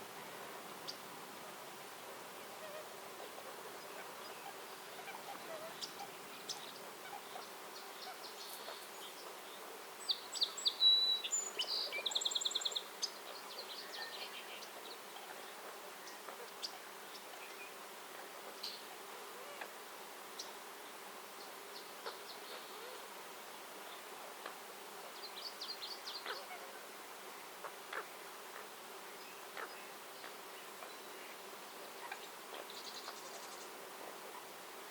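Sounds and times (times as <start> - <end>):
songbird chirping and trilling: 3.7 - 17.8, 25.1 - 26.6, 29.1 - 33.8.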